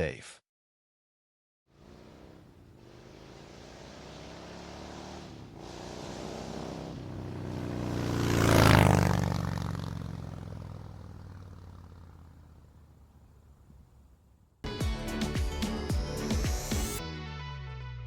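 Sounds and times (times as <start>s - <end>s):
motorcycle passing by: 1.7s - 14.4s.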